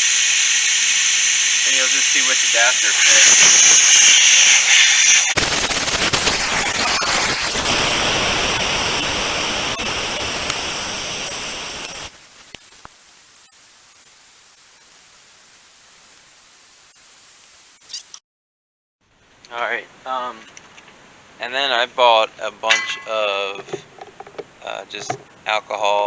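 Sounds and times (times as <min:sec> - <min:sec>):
air hissing from tire valve: 0:00.0 - 0:18.2
small clicks: 0:05.4 - 0:14.1.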